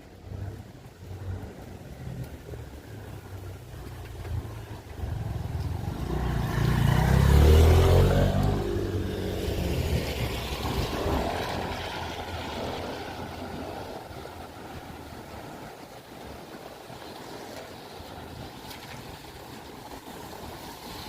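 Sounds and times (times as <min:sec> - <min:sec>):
vehicle driving past: 0:01.1 - 0:14.2.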